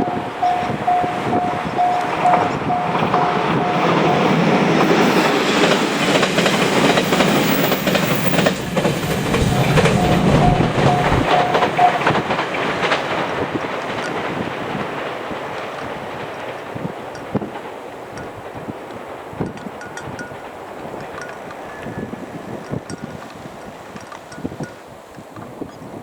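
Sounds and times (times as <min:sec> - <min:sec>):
level crossing bell dinging: 0:00.0 - 0:05.4, 0:09.1 - 0:12.4
train wheels clattering: 0:00.0 - 0:24.8.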